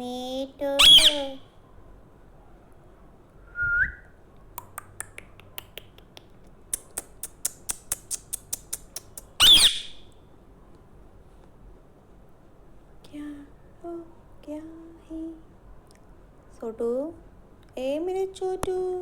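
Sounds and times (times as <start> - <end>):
parrot screeching: 0.8 - 1.4, 9.4 - 10.0
parrot whistling: 0.8 - 1.4, 3.6 - 4.0, 9.4 - 10.0
parrot clicking: 4.6 - 9.5.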